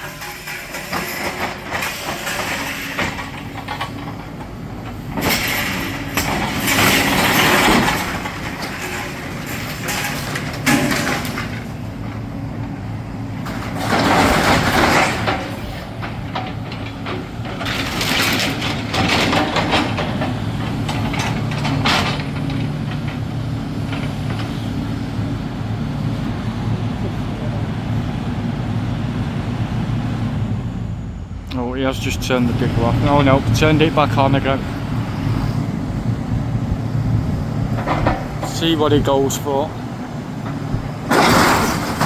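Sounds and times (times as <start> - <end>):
rubble crunching and clattering: 0.0 - 26.5, 32.0 - 42.0
excavator diesel engine running: 0.0 - 42.0.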